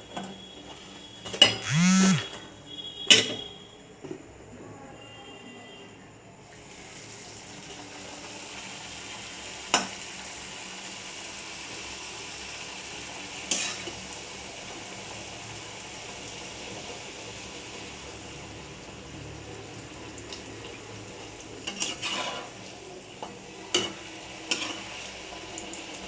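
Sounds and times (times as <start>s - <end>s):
hot oil sizzling in a pan: 6.4s - 26.0s.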